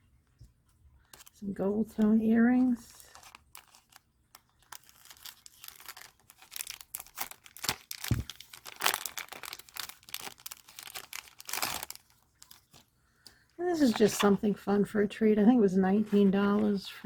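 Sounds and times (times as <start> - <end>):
plastic pouch crinkling: 1.0 - 14.4.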